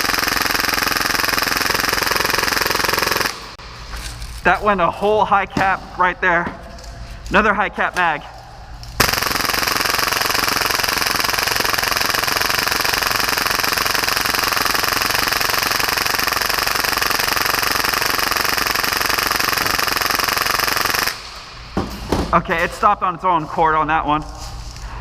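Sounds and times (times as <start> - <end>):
airsoft pistol firing full auto: 0.0 - 3.6, 9.0 - 21.2.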